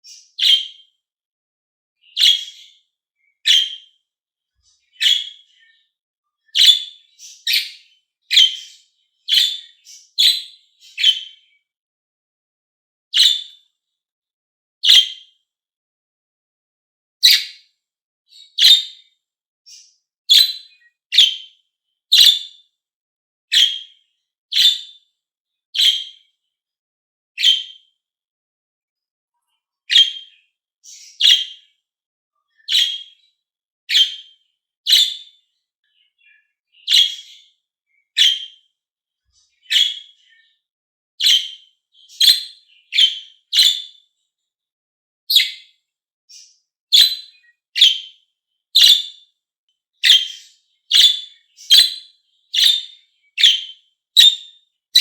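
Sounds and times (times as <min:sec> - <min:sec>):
lovebirds chirping: 0:00.0 - 0:00.7, 0:02.0 - 0:04.0, 0:04.6 - 0:05.8, 0:06.4 - 0:11.5, 0:17.2 - 0:17.6, 0:18.3 - 0:18.9, 0:19.7 - 0:21.4, 0:22.1 - 0:22.5, 0:29.9 - 0:31.6, 0:32.5 - 0:33.2, 0:34.9 - 0:35.3, 0:36.0 - 0:37.4, 0:38.1 - 0:38.6, 0:39.5 - 0:40.4, 0:41.2 - 0:43.9, 0:45.3 - 0:45.6, 0:46.3 - 0:48.1, 0:48.8 - 0:49.1, 0:50.0 - 0:54.4.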